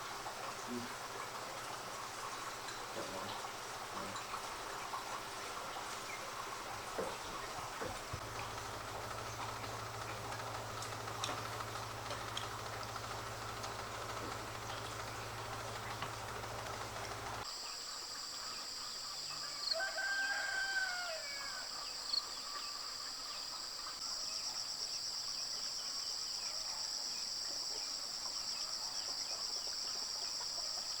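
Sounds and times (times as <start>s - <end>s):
high insect drone: 0.0s - 19.0s
rooster crowing: 19.6s - 21.8s.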